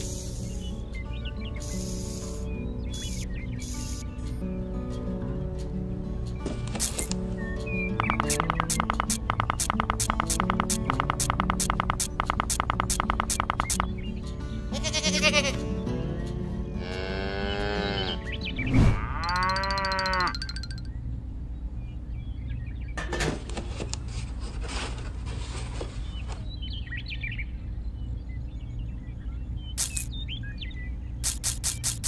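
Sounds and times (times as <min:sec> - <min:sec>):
hiss: 0:00.0 - 0:00.7, 0:01.6 - 0:04.0
background music: 0:00.0 - 0:21.0
cow mooing: 0:16.8 - 0:18.2, 0:18.9 - 0:20.4.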